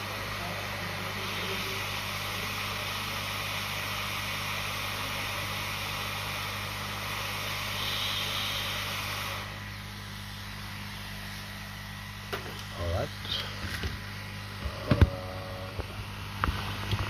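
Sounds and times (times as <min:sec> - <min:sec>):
hot air blowing: 0:00.0 - 0:17.0
low electrical hum: 0:09.4 - 0:17.0.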